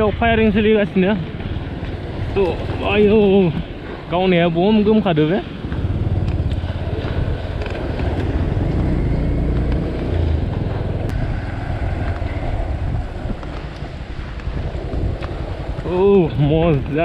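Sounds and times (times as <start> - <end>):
motorcycle engine rumble: 0.0 - 17.0
wind buffeting microphone: 0.0 - 17.0.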